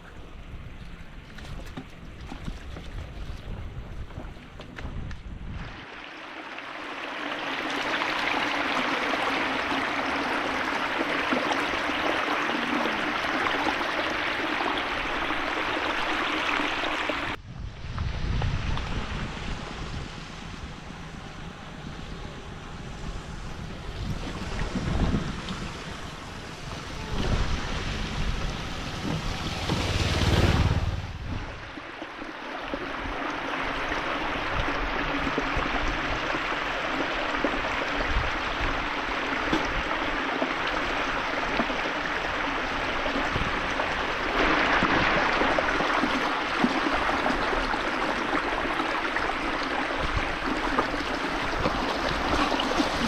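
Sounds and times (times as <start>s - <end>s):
wind buffeting microphone: 0.0s - 5.8s, 17.2s - 31.9s
floodwater rushing: 5.6s - 17.4s, 18.6s - 53.0s.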